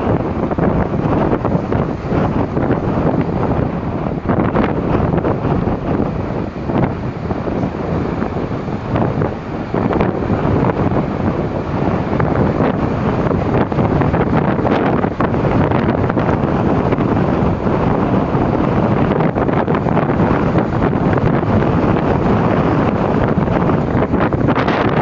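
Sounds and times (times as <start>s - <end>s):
gusting wind buffeting microphone: 0.0s - 25.0s
waves breaking on shore: 0.0s - 25.0s.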